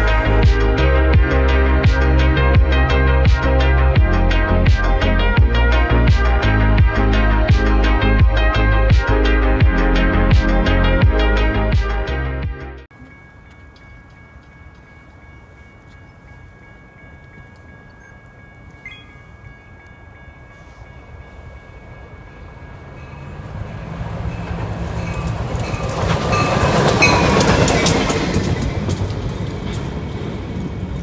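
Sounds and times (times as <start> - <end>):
wheels clicking over rail joints: 21.3 - 31.0
diesel locomotive rumble: 22.0 - 31.0.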